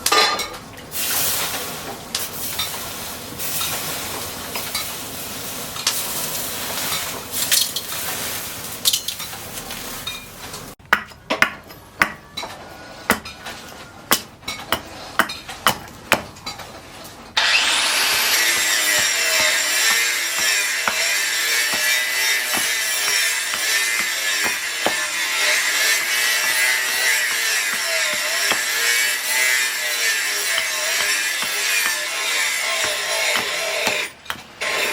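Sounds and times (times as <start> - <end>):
power grinder running: 17.4 - 34.9.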